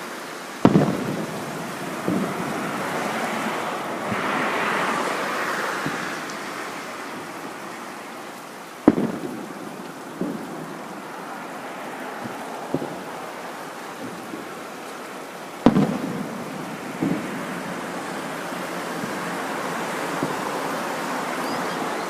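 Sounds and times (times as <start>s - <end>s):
steady rushing hiss: 0.0s - 22.0s
fireworks booming: 0.6s - 8.0s, 8.8s - 22.0s
rumbling echo: 0.7s - 5.2s.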